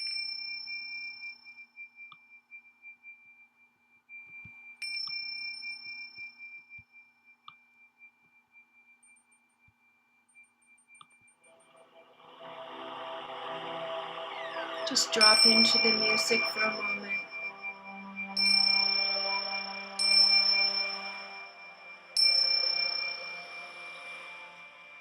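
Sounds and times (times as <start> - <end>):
metal chime ringing: 14.8 - 25.0.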